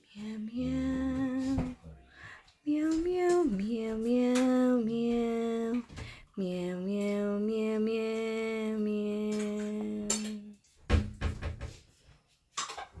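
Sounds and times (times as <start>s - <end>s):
woman singing a long note: 0.2s - 1.7s, 6.4s - 10.5s.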